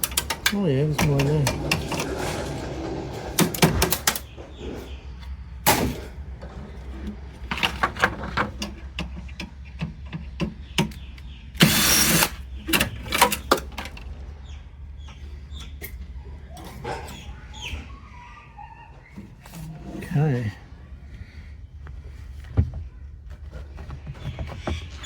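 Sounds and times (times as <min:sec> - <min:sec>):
rattling metal scrape: 0:00.0 - 0:08.9.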